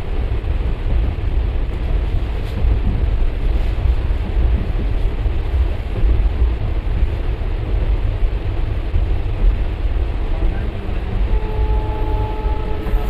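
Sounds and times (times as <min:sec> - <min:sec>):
train wheels rumbling on track: 0:00.0 - 0:13.0
pulsing low drone: 0:10.4 - 0:13.0.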